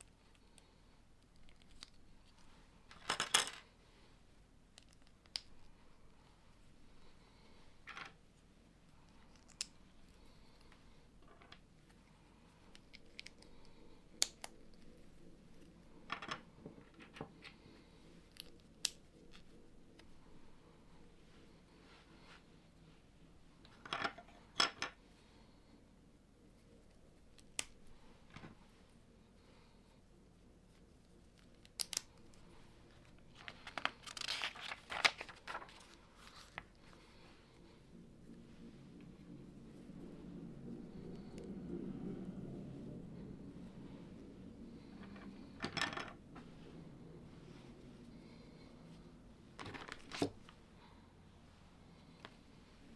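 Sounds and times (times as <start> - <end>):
rustling: 26.4 - 41.4.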